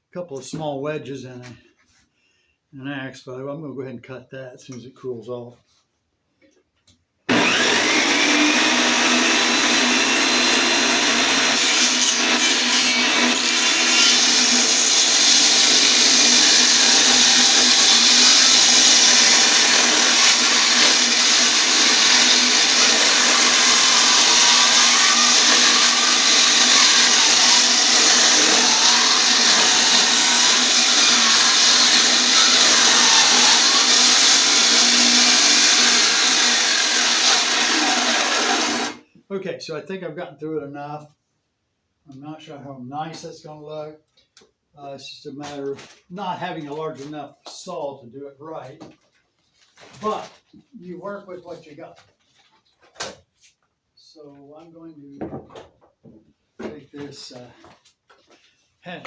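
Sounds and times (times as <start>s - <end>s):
power saw cutting log: 7.3s - 39.0s.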